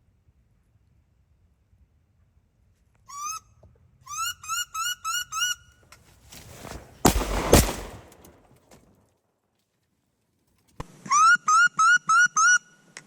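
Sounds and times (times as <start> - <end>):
squealing duck calls: 4.1 - 5.6
shotgun shots: 6.5 - 8.6.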